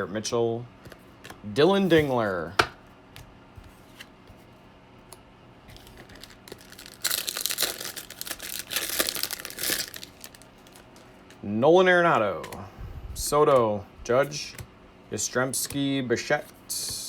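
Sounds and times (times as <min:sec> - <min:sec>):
foil wrapper tearing and crinkling: 0:05.8 - 0:11.1.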